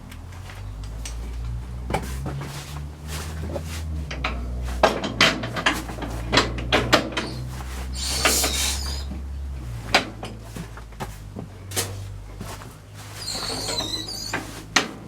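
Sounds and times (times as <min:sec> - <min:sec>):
steady low hum: 0:00.0 - 0:13.5
metallic clunks and knocks: 0:00.8 - 0:07.6.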